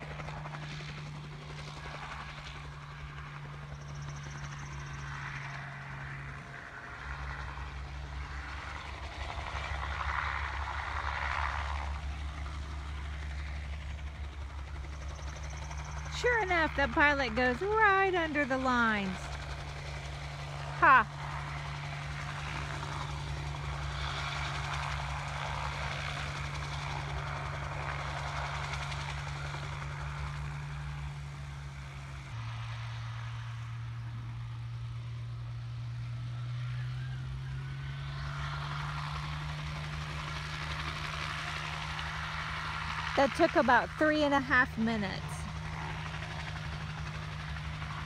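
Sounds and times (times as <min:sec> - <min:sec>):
helicopter rotor and engine drone: 0:00.0 - 0:48.0.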